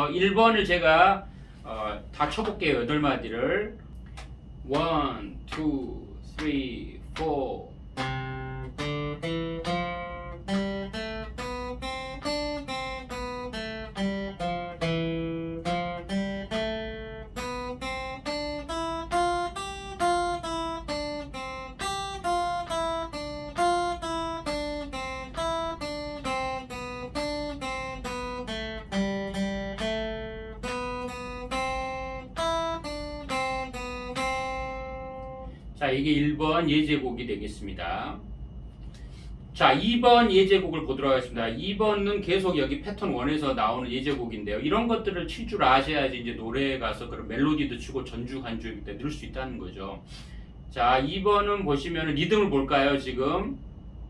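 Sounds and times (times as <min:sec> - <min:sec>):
acoustic guitar picked melody: 0:07.9 - 0:35.8.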